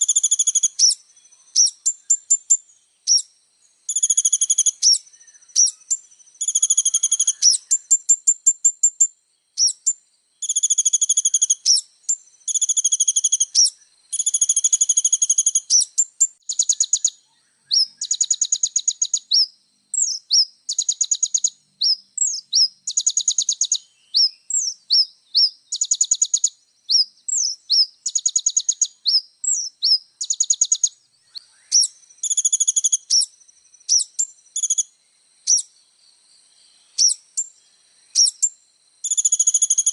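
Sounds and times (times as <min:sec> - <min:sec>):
bird chattering song: 0:00.0 - 0:03.3, 0:03.9 - 0:35.9, 0:36.6 - 0:39.9.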